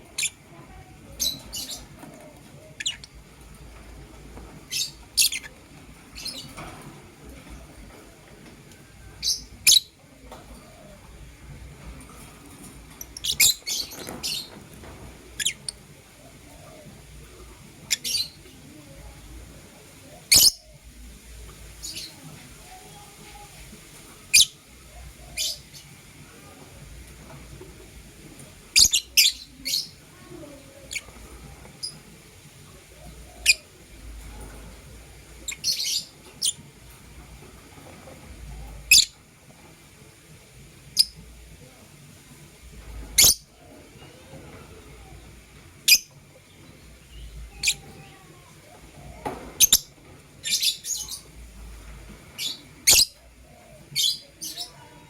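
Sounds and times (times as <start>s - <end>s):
lovebirds chirping: 0.1s - 3.2s, 4.6s - 6.8s, 12.5s - 16.9s, 20.1s - 20.9s, 24.3s - 26.1s, 28.7s - 32.1s, 32.7s - 36.7s, 38.4s - 39.3s, 45.8s - 55.0s.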